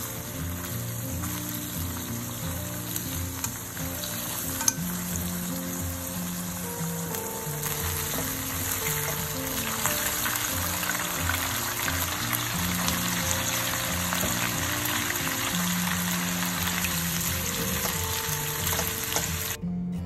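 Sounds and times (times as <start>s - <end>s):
spatula and spoon stirring: 0.0s - 15.1s
food sizzling in a wok: 0.0s - 19.6s
soft background music: 0.0s - 20.0s.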